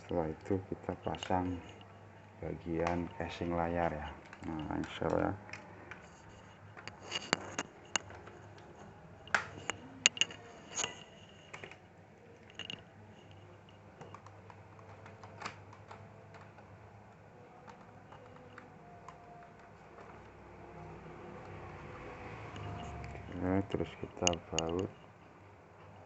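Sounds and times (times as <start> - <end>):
plastic parts clicking into place: 12.4 - 12.8.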